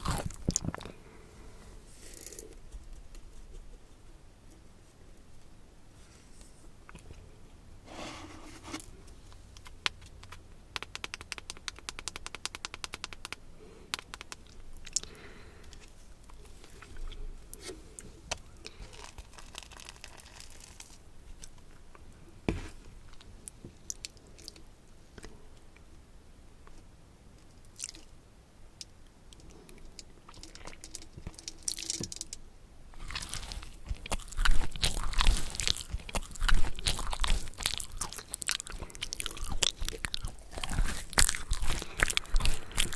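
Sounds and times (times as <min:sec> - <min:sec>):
crunching and chewing crisp food: 0:00.0 - 0:03.7, 0:14.0 - 0:22.0, 0:27.5 - 0:28.1, 0:29.3 - 0:32.3, 0:32.9 - 0:42.9.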